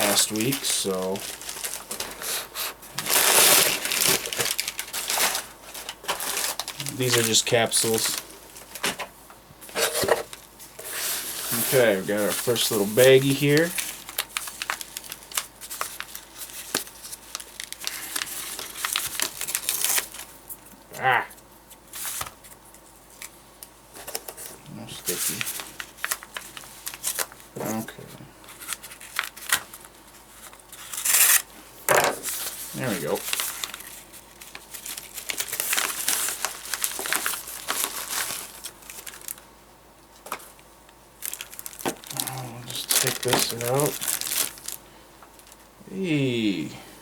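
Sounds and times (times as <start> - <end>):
plastic bag crinkling: 0.0 - 8.8, 9.7 - 20.4, 32.2 - 39.4, 41.2 - 45.7.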